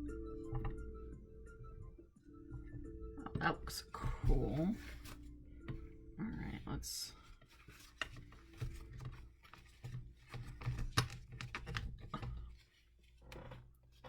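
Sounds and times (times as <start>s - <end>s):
paper rustling: 3.8s - 14.0s
small taps and clicks: 7.2s - 14.0s.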